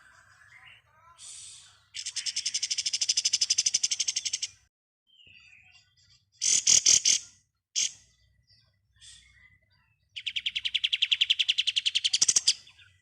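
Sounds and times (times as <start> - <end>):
songbird rattling trill: 2.0 - 4.6, 6.4 - 8.0, 10.2 - 12.7.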